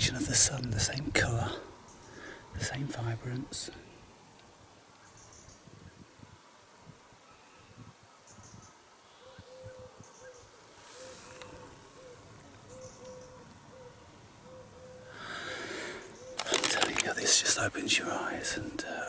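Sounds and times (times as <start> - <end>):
small birds chirping: 0.1 - 4.1, 4.9 - 6.0, 7.3 - 19.0
bird hooting: 9.1 - 17.2.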